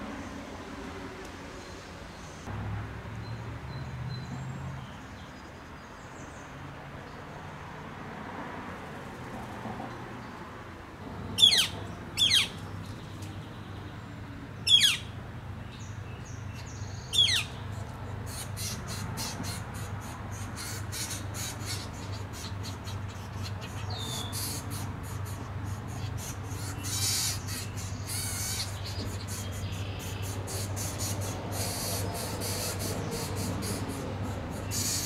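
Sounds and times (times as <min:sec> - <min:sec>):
sharp descending bird calls: 0:11.4 - 0:12.6, 0:14.6 - 0:15.1, 0:17.0 - 0:17.6
nestlings begging ticking: 0:17.1 - 0:35.0.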